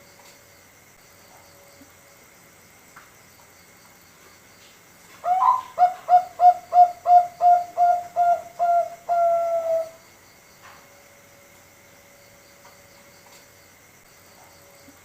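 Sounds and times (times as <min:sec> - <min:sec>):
dove cooing: 0:05.2 - 0:10.0.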